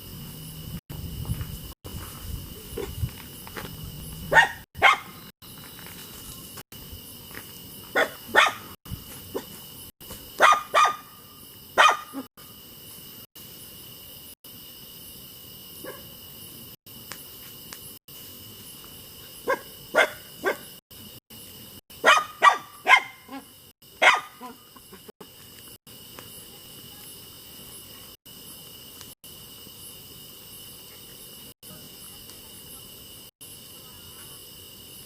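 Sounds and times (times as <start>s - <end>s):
crickets chirring: 0.0s - 35.0s
dog barking: 4.3s - 5.2s, 7.9s - 9.5s, 10.4s - 11.2s, 11.8s - 12.3s, 15.8s - 16.1s, 19.4s - 20.8s, 22.0s - 24.6s.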